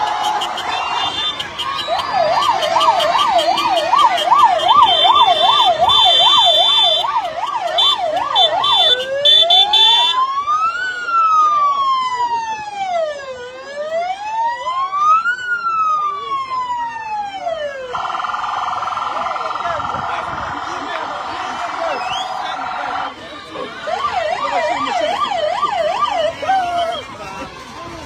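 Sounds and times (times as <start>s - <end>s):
escort vehicle siren: 0.0s - 28.0s.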